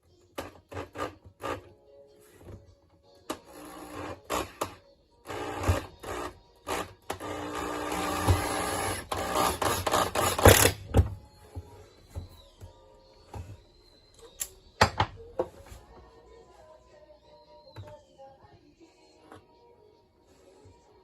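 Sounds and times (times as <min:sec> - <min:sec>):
handsaw cutting plywood: 0:06.8 - 0:10.8.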